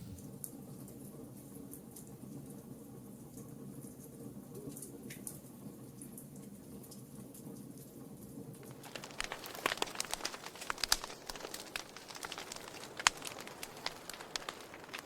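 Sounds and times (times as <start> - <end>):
fire flames burning: 8.6 - 15.0
logs crackling and popping: 8.6 - 15.0.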